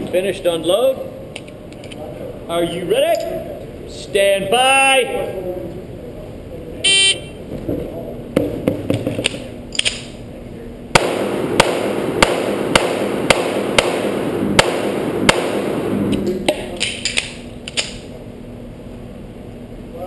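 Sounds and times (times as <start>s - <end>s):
pistol shots: 10.9s - 16.0s.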